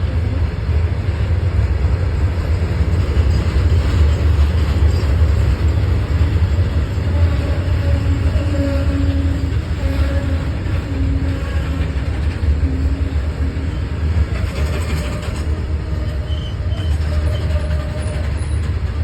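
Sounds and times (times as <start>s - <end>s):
train wagons rumbling: 0.0s - 19.0s.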